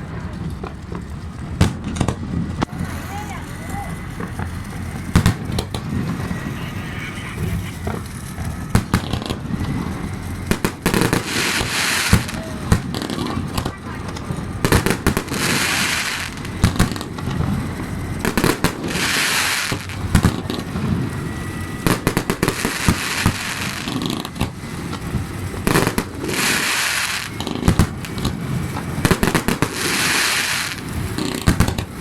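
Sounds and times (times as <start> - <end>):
fireworks cracks and bangs: 0.0 - 32.0
fireworks hissing burst: 2.7 - 17.5, 18.2 - 20.4, 25.7 - 32.0.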